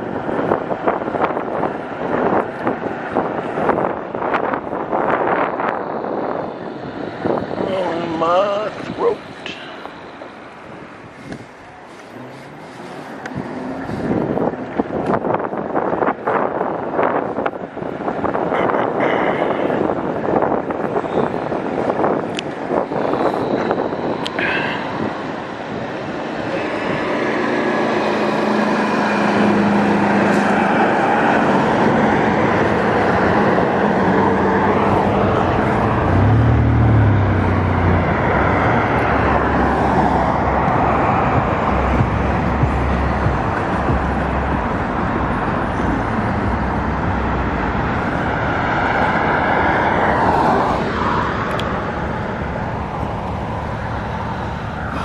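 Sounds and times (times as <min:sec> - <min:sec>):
deep vehicle hum: 0:00.0 - 0:55.0
road traffic noise: 0:00.0 - 0:55.0
vehicles passing: 0:00.0 - 0:55.0.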